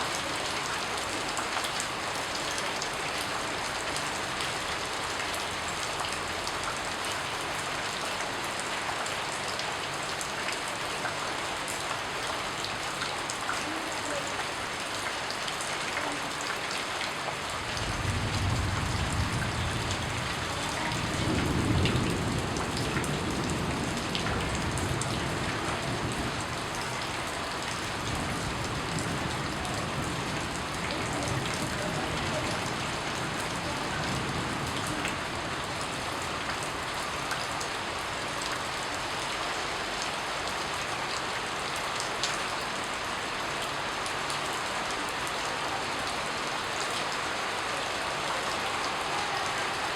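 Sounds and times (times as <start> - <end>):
rain pattering on a surface: 0.0 - 49.9.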